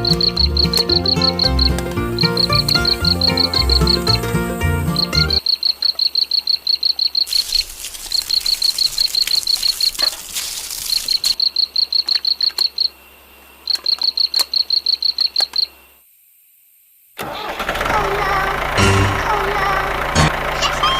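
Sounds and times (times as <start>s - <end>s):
high-pitched chirping: 0.0s - 7.6s.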